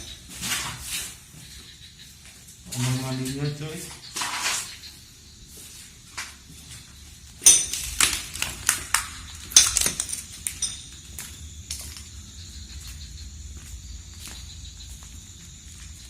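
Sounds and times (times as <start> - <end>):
hard objects clicking and clattering: 7.4 - 11.0.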